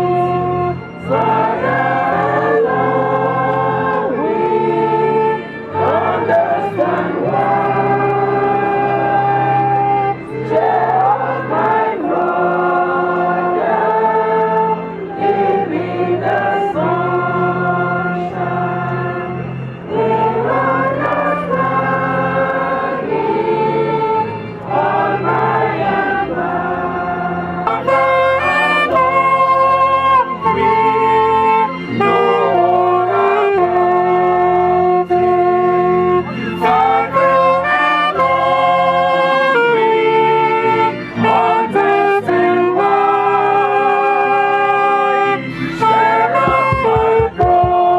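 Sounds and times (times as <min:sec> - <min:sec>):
choir singing gospel music: 0:00.0 - 0:47.9
bass line: 0:46.1 - 0:47.9.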